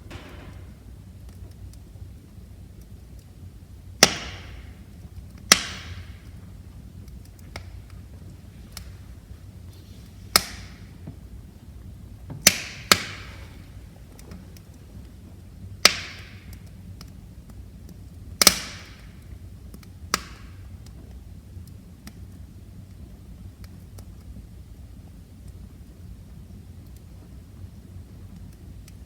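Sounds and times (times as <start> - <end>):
loud sharp pops of fire: 0.0 - 22.5
low rumble of flames: 0.0 - 29.0
wood fire crackling: 0.0 - 29.0.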